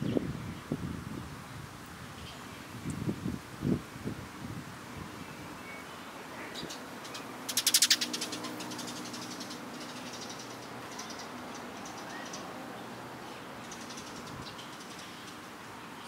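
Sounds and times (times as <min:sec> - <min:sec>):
bird chattering call: 0:06.6 - 0:12.4.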